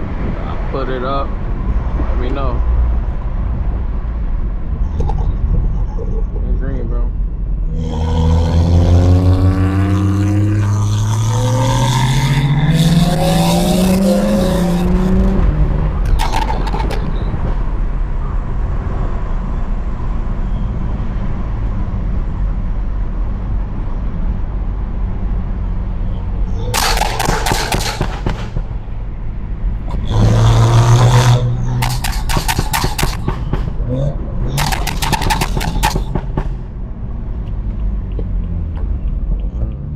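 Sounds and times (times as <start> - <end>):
car exhaust accelerating: 2.9 - 18.6, 25.9 - 39.9.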